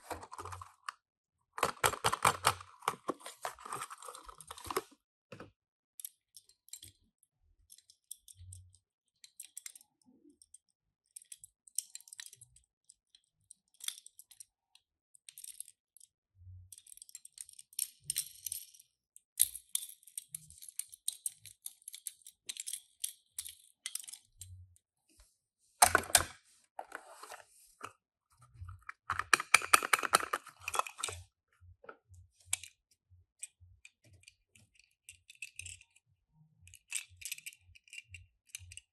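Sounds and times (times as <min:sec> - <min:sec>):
toys clattering: 0:00.0 - 0:00.9, 0:01.6 - 0:04.9, 0:25.8 - 0:27.9, 0:28.6 - 0:31.3
toy cars clicking and tapping: 0:01.6 - 0:04.8, 0:07.6 - 0:16.1, 0:16.7 - 0:24.5, 0:28.7 - 0:31.3, 0:33.4 - 0:36.0, 0:36.6 - 0:38.9.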